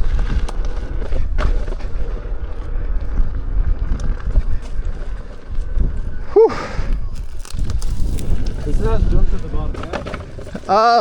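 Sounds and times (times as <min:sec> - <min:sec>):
dirt trail rumble: 0:00.0 - 0:11.0
wind buffeting microphone: 0:00.0 - 0:11.0.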